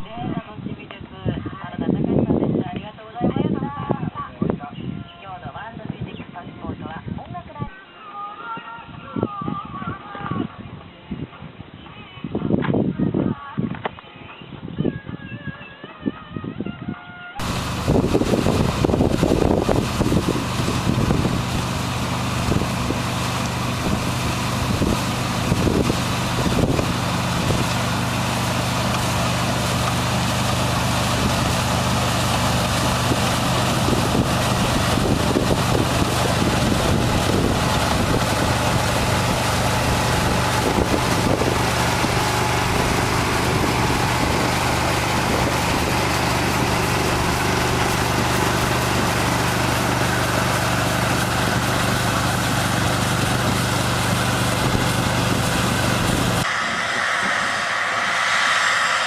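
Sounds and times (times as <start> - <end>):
farm machine engine running: 17.4 - 59.0.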